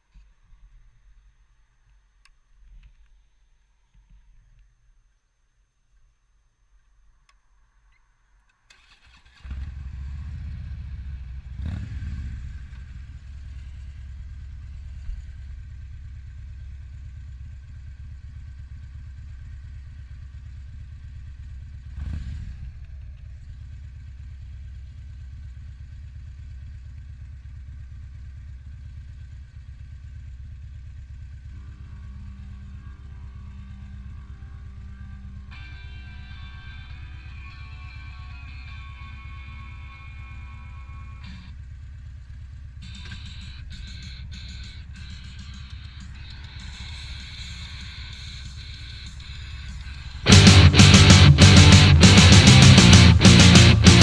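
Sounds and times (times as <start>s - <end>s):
motorcycle engine starting: 8.7s - 54.0s
motorcycle engine revving: 8.8s - 54.0s
motorcycle engine idling: 9.1s - 54.0s
music: 46.3s - 54.0s.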